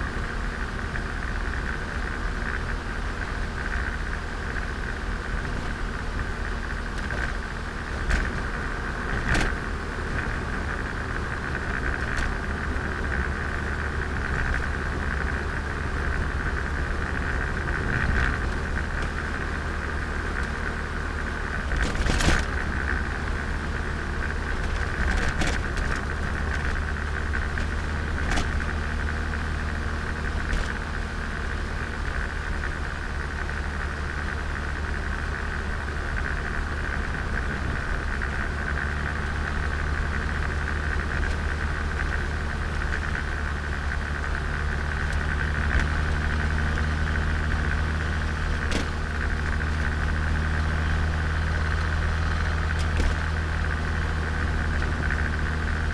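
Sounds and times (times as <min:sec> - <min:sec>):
car engine running: 0:00.0 - 0:55.9.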